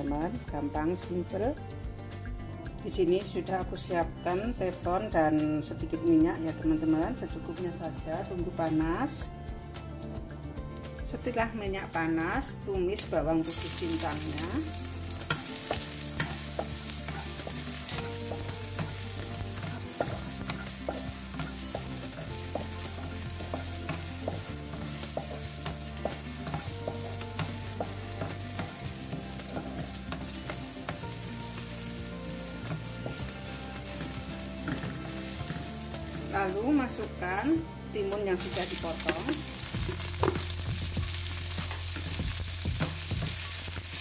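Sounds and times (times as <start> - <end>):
garlic sizzling in oil: 12.0 - 44.0
spatula scraping and tapping pan: 13.8 - 36.3, 38.1 - 44.0.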